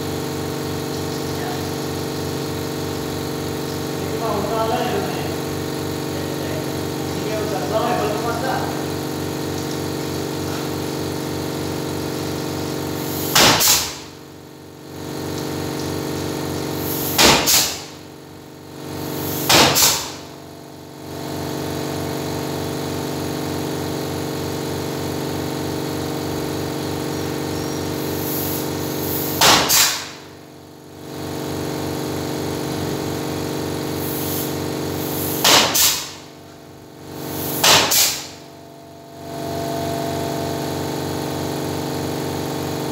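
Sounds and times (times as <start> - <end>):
loud hissing clattering bursts: 0.0 - 20.4, 21.0 - 30.4, 31.0 - 38.5
machine humming with pulse: 32.6 - 42.9.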